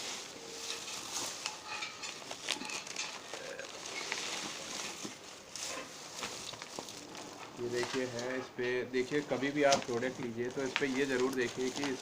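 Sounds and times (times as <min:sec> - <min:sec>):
packaging crinkling: 0:02.2 - 0:08.3, 0:09.0 - 0:12.0.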